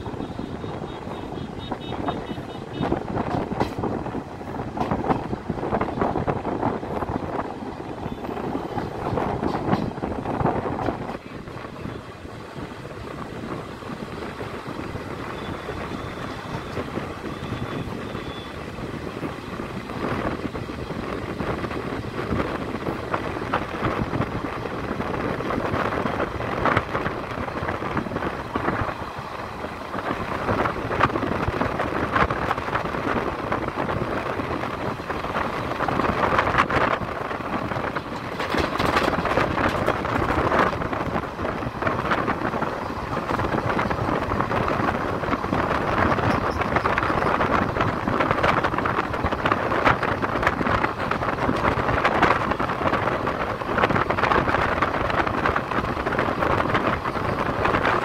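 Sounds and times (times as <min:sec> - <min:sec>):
train wheels rumbling on rails: 0:00.0 - 0:58.0
wheels clacking: 0:00.0 - 0:58.0
wind buffeting microphone: 0:00.0 - 0:58.0.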